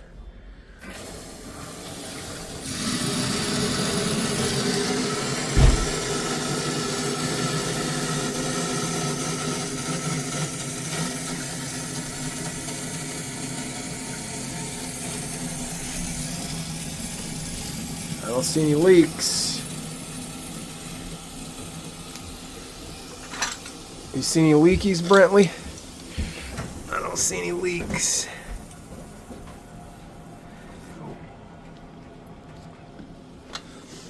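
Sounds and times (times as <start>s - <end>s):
water rushing into tank: 0.8s - 8.2s
thump: 5.6s - 6.0s.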